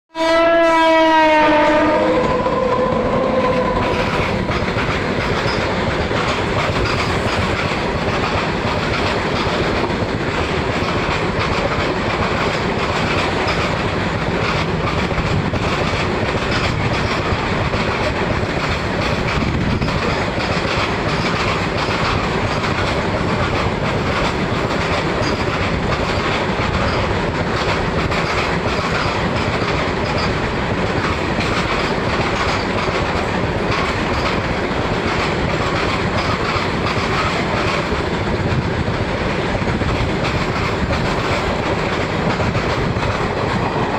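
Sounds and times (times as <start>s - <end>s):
freight train wheels clattering: 1.5s - 43.9s.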